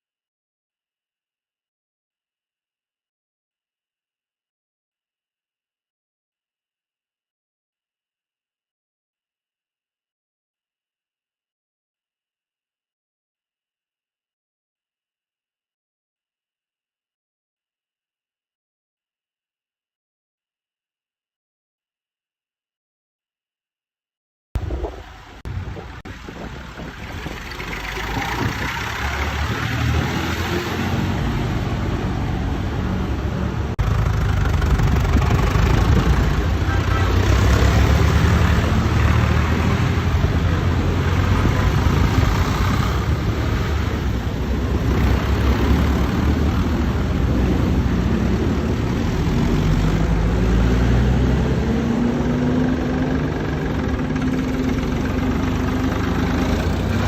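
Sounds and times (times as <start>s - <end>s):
old tractor engines passing: 24.6s - 57.0s.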